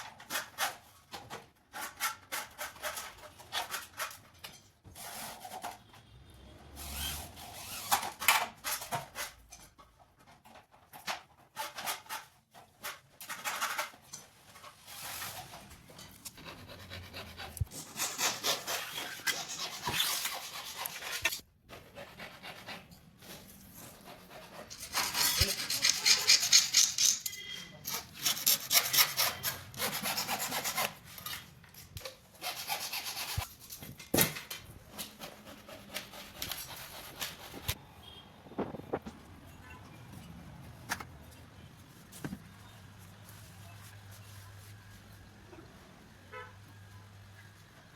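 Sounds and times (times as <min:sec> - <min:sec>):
scraping and rasping on metal: 0:11.4 - 0:31.4.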